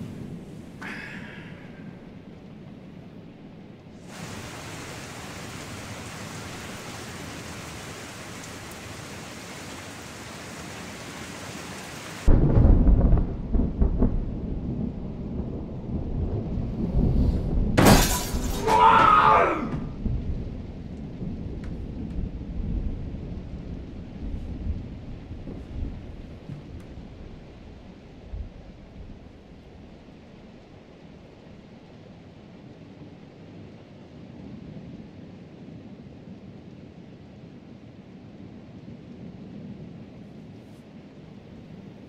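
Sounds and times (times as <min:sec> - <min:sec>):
thunder rumble: 0:00.0 - 0:30.8
steady rain hiss: 0:00.0 - 0:42.0
sharp thunder crack: 0:12.2 - 0:18.7.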